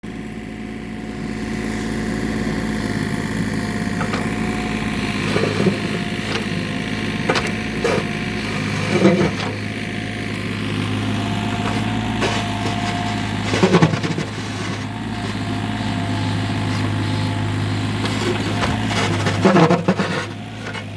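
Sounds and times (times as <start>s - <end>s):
plumbing humming: 2.4s - 20.9s
knocks and thuds in pipes: 4.0s - 4.3s, 7.2s - 8.1s.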